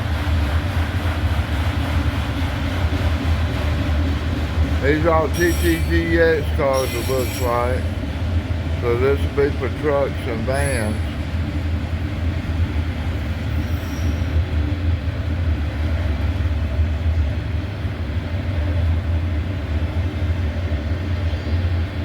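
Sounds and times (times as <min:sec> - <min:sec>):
freight train rolling on rails: 0:00.0 - 0:22.0.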